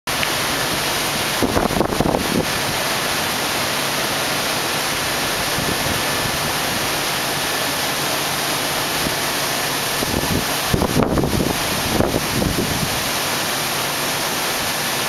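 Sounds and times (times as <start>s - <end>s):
heavy rain pouring: 0.1s - 15.0s
wind gusts rumbling: 0.7s - 3.1s, 4.9s - 7.2s, 8.8s - 13.2s.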